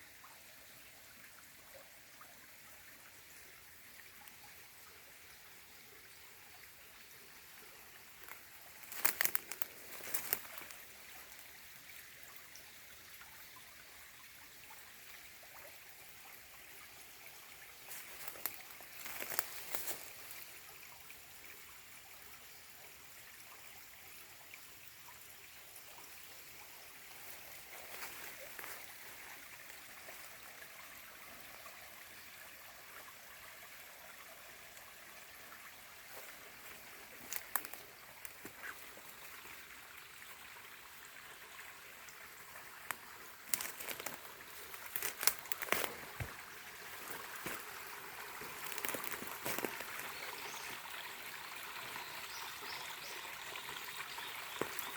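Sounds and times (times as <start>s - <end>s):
stream trickling over stones: 0.0s - 54.9s
small splashes and drips: 1.3s - 22.3s, 23.9s - 54.9s.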